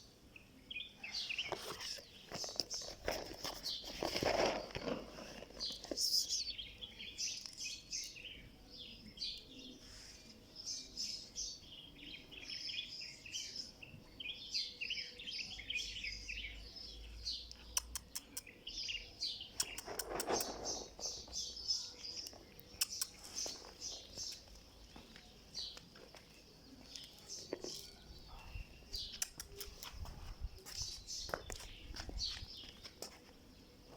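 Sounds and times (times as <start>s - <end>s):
small birds chirping: 0.0s - 33.9s
sharp clicks: 17.5s - 18.5s, 22.8s - 23.2s, 29.1s - 30.0s.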